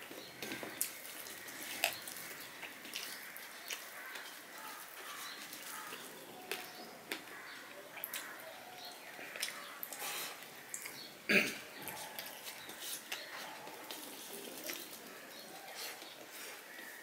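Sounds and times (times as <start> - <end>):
wet chewing and lip smacks: 9.1 - 11.0.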